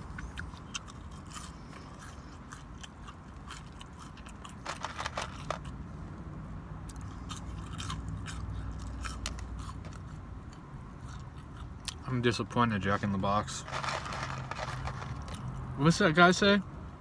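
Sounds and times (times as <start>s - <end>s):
person chewing crunchy food: 0.0s - 5.8s, 6.9s - 12.0s, 13.6s - 15.6s
low steady hum: 0.0s - 15.6s.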